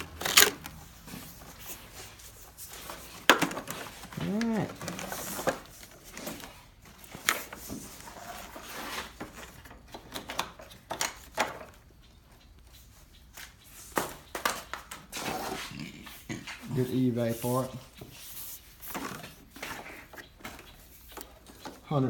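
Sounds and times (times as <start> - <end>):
tools and parts clicking: 0.0 - 0.8.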